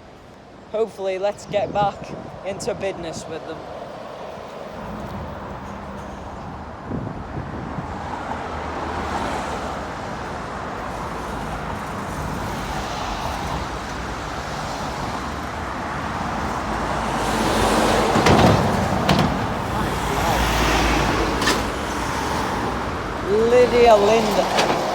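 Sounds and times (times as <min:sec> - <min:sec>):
road traffic passing: 0:00.0 - 0:24.9
vehicle approaching: 0:08.2 - 0:24.9.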